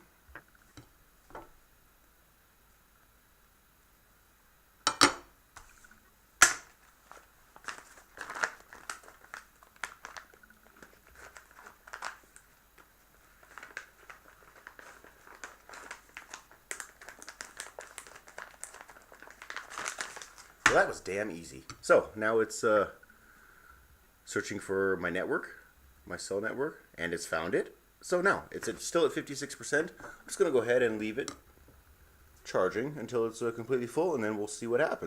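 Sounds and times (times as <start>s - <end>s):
crinkling and small clicks: 5.6s - 20.9s.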